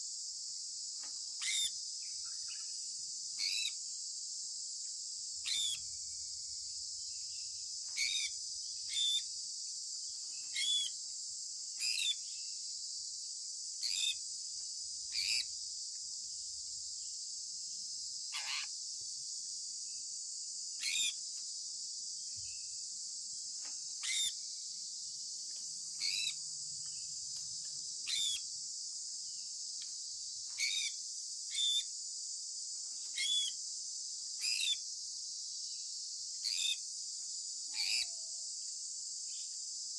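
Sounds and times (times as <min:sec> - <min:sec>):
steady high-pitched hiss: 0:00.0 - 0:39.9
parrot chirping: 0:24.0 - 0:24.3, 0:28.1 - 0:28.4.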